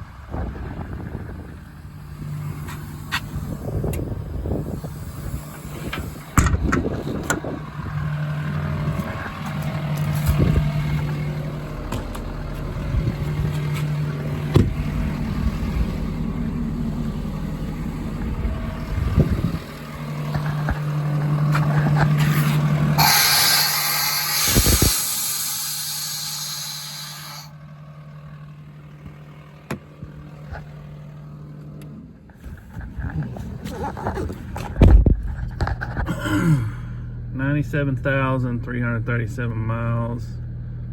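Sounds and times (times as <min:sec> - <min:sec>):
diesel engine and hydraulics humming: 0:00.0 - 0:40.9
loud hiss of escaping air: 0:22.3 - 0:27.5.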